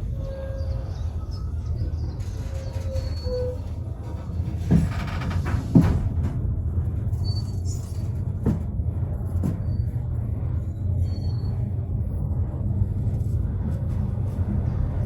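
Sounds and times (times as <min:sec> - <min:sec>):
train carriage rumbling on track: 0:00.0 - 0:15.0.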